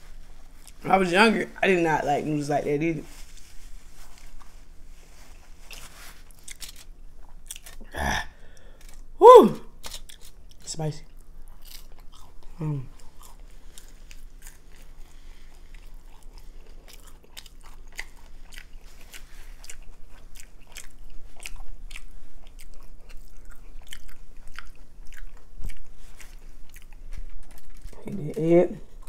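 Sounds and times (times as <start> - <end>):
person chewing noodles: 5.1 - 9.2, 9.8 - 28.0.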